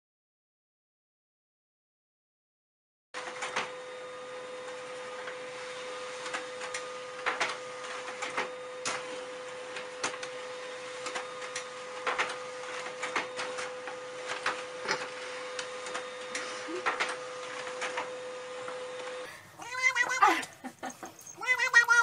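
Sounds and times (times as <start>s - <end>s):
printer paper feed clicking: 6.2s - 19.2s.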